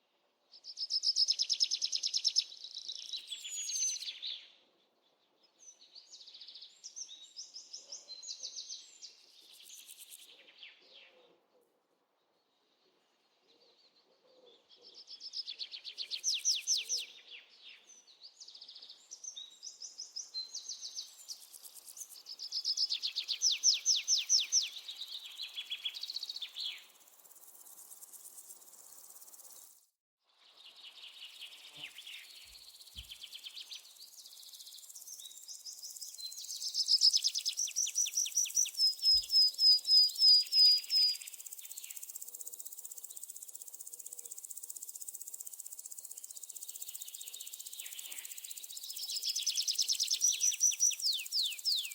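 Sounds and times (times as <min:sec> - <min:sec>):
small birds trilling and chirping: 0:00.5 - 0:11.3, 0:12.3 - 0:51.9
high insect hum: 0:26.2 - 0:29.9, 0:40.4 - 0:51.9.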